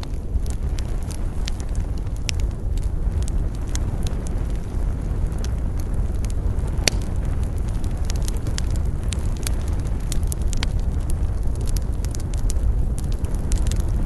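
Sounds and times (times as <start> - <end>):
bonfire crackling and popping: 0.0 - 14.0
low fire rumble: 0.0 - 14.0.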